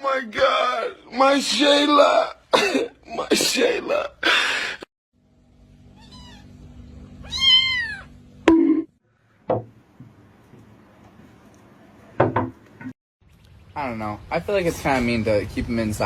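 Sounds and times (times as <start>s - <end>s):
cat meowing: 5.9s - 6.6s, 7.2s - 8.2s
sharp knocks: 9.5s - 9.8s, 12.2s - 12.6s.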